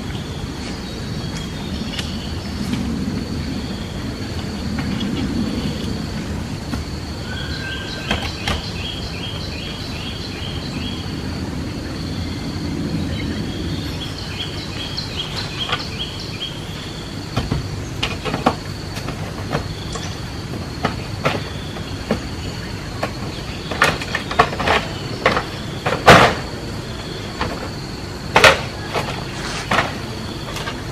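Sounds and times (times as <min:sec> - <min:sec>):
bird chirping: 0:00.0 - 0:06.0, 0:07.2 - 0:18.3
outdoor background noise: 0:00.0 - 0:30.9.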